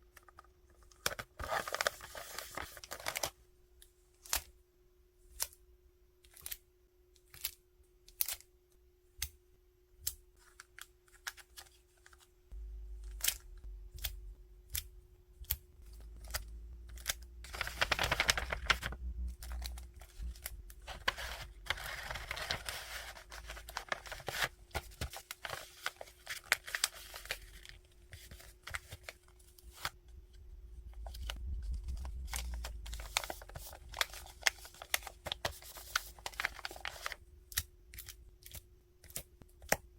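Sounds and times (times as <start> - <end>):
faint steady hum: 0.0 - 39.9
packaging rustling and crinkling: 0.8 - 3.4, 17.0 - 30.0, 30.9 - 37.2
packaging tearing: 17.5 - 27.7.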